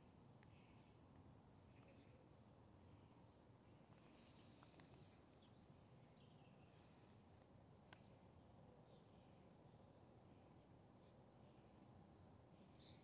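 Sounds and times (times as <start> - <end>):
small bird chirping: 0.0 - 0.8, 3.8 - 4.7, 12.4 - 13.0
faint click: 4.5 - 5.1, 7.8 - 8.1.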